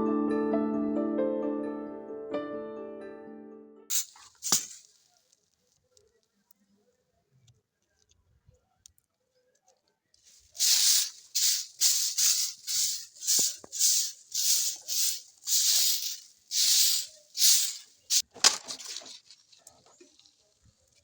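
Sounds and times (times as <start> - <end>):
rhythmic swishing hisses: 3.9 - 5.0, 10.3 - 18.2.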